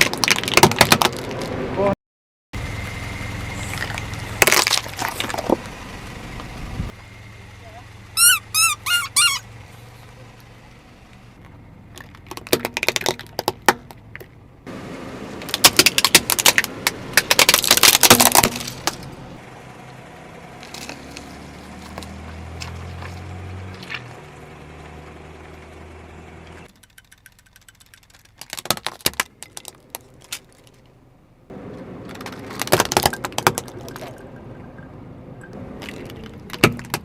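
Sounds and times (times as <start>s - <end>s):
car engine low hum: 2.6s - 37.0s
short squeaky chirps: 8.2s - 10.2s
tyre crushing objects: 15.4s - 19.2s, 20.6s - 24.1s, 28.0s - 30.8s.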